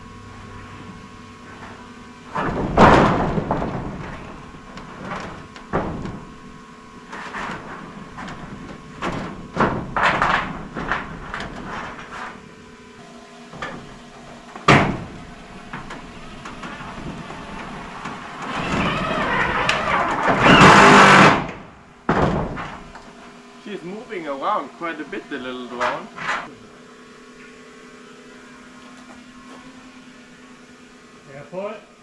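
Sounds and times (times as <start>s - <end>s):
faint steady hum: 0.0s - 32.0s
roof panels knocking and banging: 0.8s - 12.6s, 13.5s - 23.1s.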